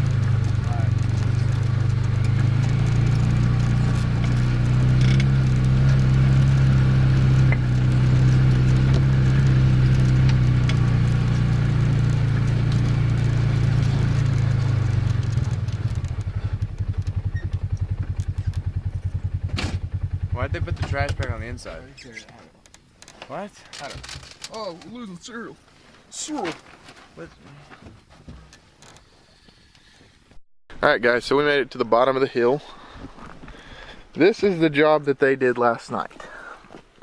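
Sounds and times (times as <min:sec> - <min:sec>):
small off-road vehicle engine: 0:00.0 - 0:23.1.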